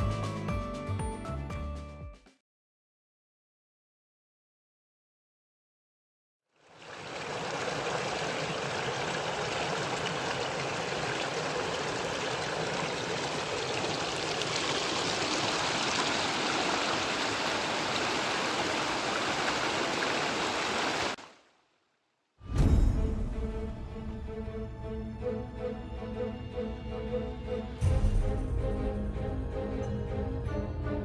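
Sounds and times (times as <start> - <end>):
mountain stream running: 6.6 - 21.5.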